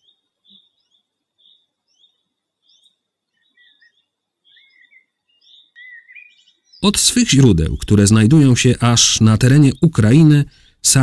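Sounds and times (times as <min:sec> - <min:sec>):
high bird chirps: 0:00.0 - 0:08.4.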